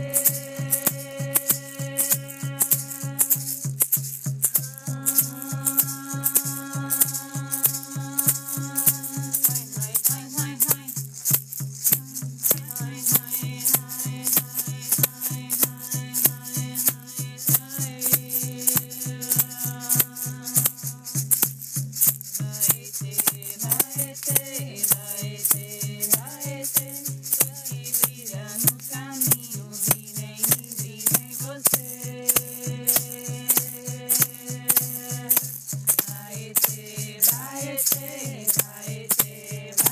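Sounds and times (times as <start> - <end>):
person singing a chant: 0.0 - 3.7, 4.5 - 11.0, 11.9 - 21.2, 22.6 - 35.4, 36.0 - 39.9
rattle shaken in steady beat: 0.0 - 39.9.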